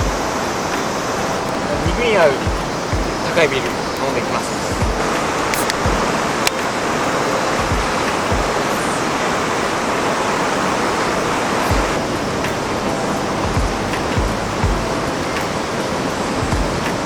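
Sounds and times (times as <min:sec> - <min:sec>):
river flowing over rocks: 0:00.0 - 0:17.0
sharp click: 0:05.5 - 0:06.7.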